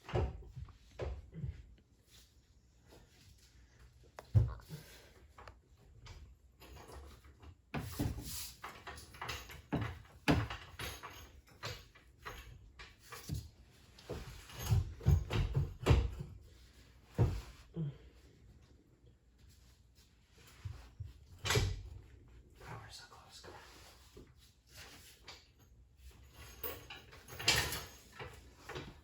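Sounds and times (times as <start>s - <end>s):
tools and metal parts clunking: 6.0s - 17.5s, 24.8s - 29.0s.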